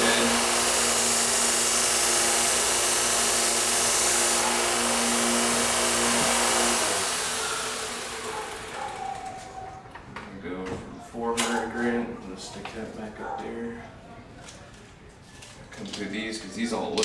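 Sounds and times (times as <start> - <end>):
electric knife sharpener humming: 0.0 - 9.4.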